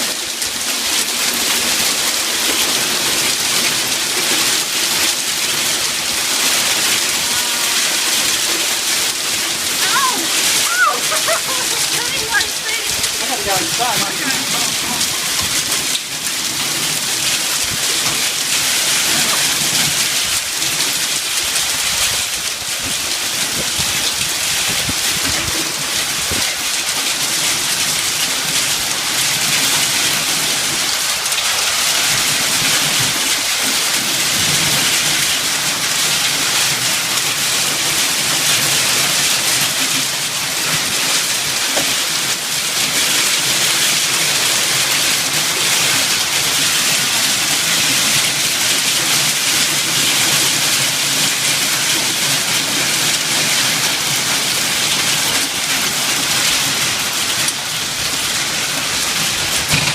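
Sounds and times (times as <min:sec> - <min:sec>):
hail and heavy rain pelting: 0:00.0 - 0:59.9.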